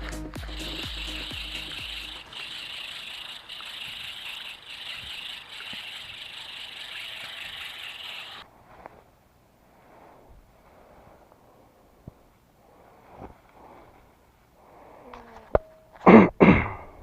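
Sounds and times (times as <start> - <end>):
insects chirping: 0.5 - 8.5.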